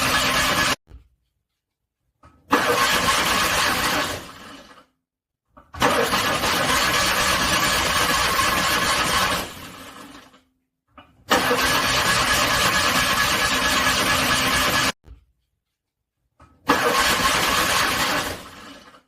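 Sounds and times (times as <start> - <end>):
car engine cranking: 2.5 - 4.8, 5.8 - 10.3, 11.3 - 14.9, 16.6 - 19.0.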